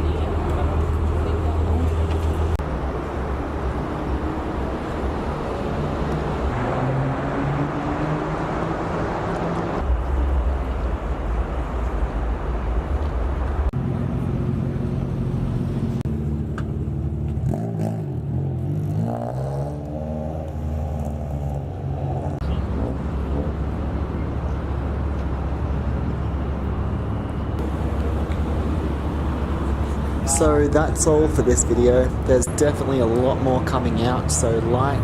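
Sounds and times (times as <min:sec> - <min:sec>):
car engines running: 0:00.0 - 0:35.0
engine revving: 0:05.7 - 0:09.9, 0:14.1 - 0:23.6.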